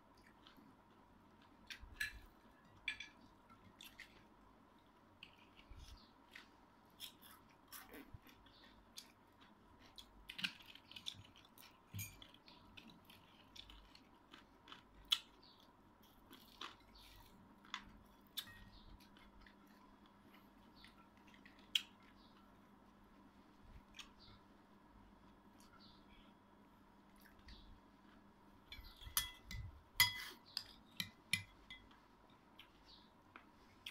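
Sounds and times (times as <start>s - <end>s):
chewing crisp crunches: 5.2s - 22.2s.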